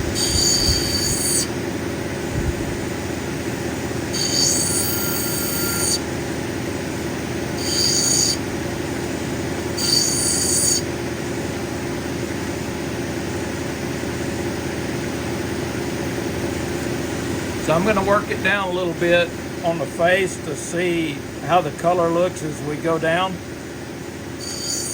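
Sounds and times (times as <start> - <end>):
stone squealing on grinding wheel: 0.0 - 1.5, 4.1 - 6.1, 7.5 - 8.5, 9.8 - 10.9, 24.4 - 24.9
grinding machine motor running: 0.0 - 24.9.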